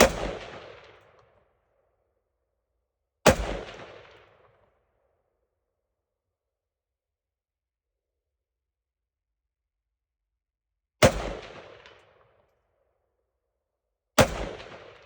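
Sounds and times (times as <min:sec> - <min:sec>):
rifle shot: 0:00.0 - 0:01.2, 0:03.2 - 0:04.5, 0:11.0 - 0:12.1, 0:14.2 - 0:15.0.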